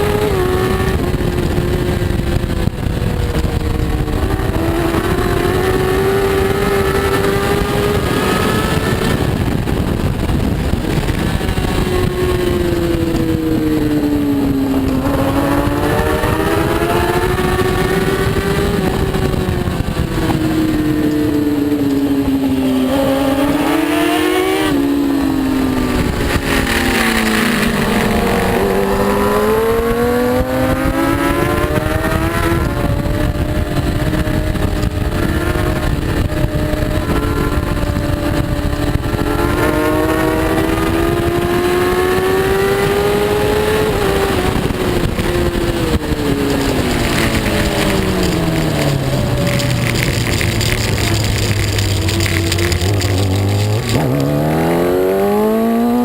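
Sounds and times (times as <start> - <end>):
superbike engine accelerating: 0.0 - 56.0.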